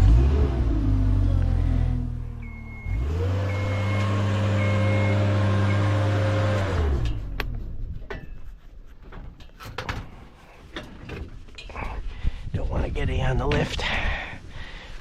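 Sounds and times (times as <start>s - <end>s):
lift alarm beeping: 2.4s - 6.6s
electric motor humming: 2.8s - 7.3s.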